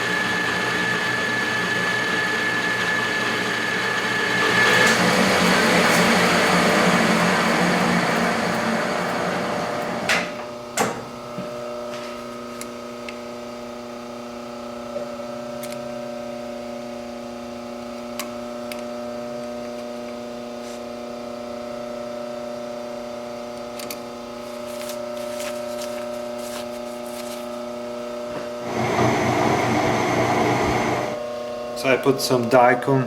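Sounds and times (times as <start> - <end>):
metal lathe humming: 0.0 - 10.3, 28.5 - 31.4.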